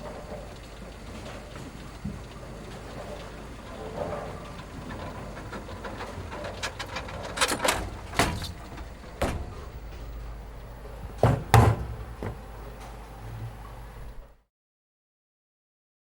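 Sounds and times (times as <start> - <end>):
steady low hum: 0.0 - 14.4
sharp knocks and clatters: 1.2 - 10.2, 11.0 - 12.5.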